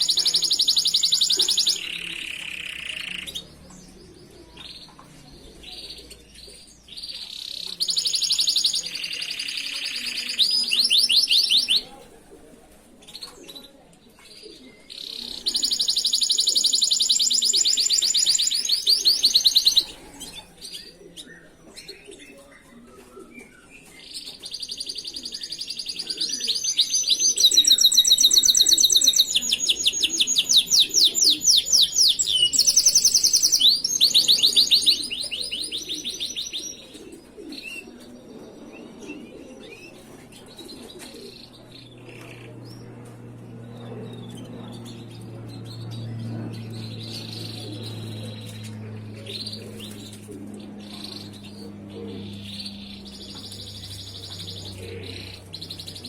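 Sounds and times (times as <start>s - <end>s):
canary trilling: 0.0s - 4.8s, 5.7s - 11.8s, 14.9s - 20.1s, 24.6s - 36.8s
low steady hum: 26.8s - 56.0s.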